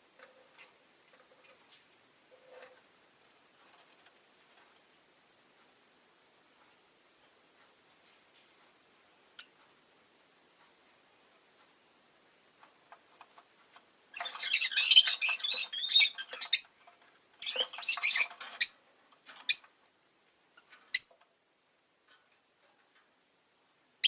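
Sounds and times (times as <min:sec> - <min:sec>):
lovebirds chattering and squawking: 0:14.2 - 0:16.8, 0:17.4 - 0:18.8.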